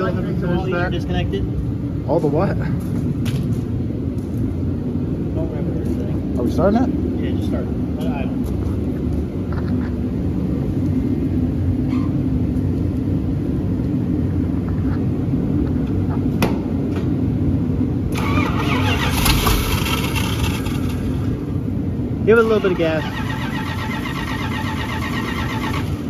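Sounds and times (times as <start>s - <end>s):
truck engine cranking: 18.1s - 21.7s, 22.4s - 26.0s
loud hissing rush: 18.2s - 21.7s.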